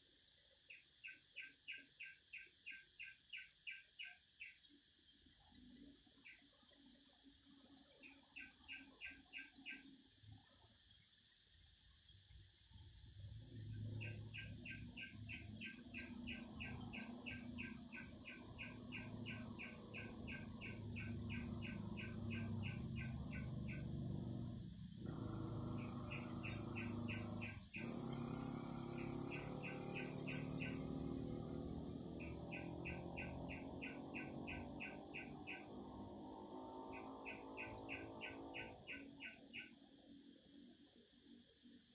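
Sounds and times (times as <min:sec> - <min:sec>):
cicadas buzzing: 0:12.6 - 0:40.7.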